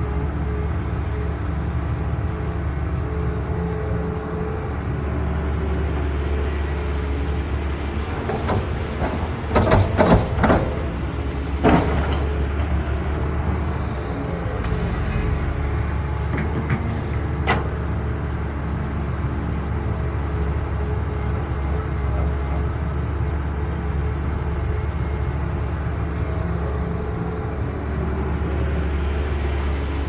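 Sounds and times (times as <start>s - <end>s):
excavator diesel engine running: 0.0s - 30.0s
loud metal clanks: 8.1s - 12.9s.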